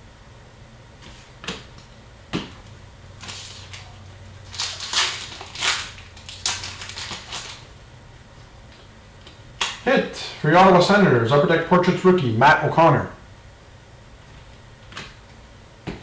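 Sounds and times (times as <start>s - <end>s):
card packs crinkling: 3.2s - 7.8s.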